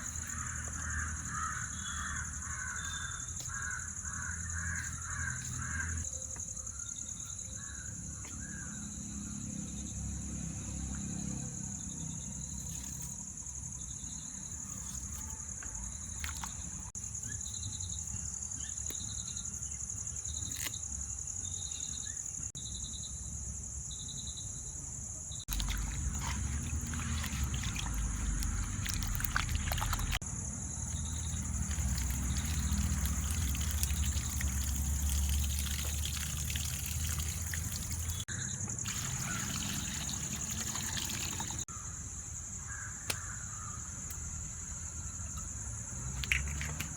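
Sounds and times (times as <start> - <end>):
crow cawing: 0.3 - 6.0, 42.7 - 43.8.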